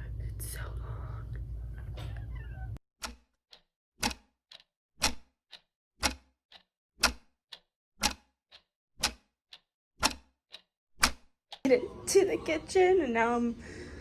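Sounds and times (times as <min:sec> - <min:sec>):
clock ticking: 0:03.0 - 0:11.7.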